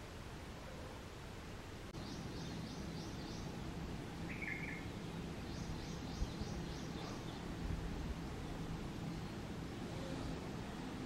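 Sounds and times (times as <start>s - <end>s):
steady background noise: 0.0s - 11.0s
bird chirping: 2.0s - 10.3s
short lower bird call: 4.3s - 4.9s.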